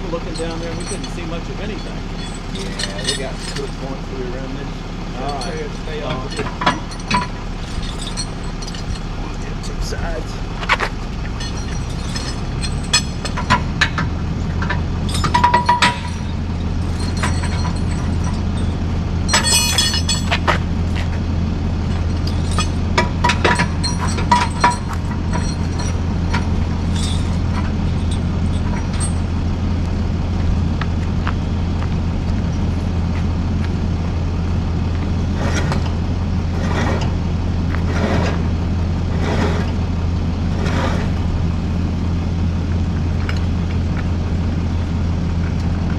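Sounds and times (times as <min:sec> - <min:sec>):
metallic clinks and clanks: 0:00.0 - 0:04.1, 0:05.2 - 0:21.2, 0:21.8 - 0:29.6
truck engine idling: 0:00.0 - 0:36.5.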